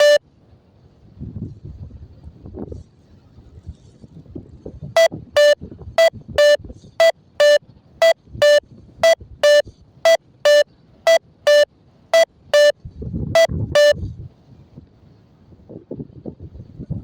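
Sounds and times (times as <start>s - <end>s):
variometer beeping: 0.0s - 0.2s, 5.0s - 12.8s, 13.4s - 14.0s.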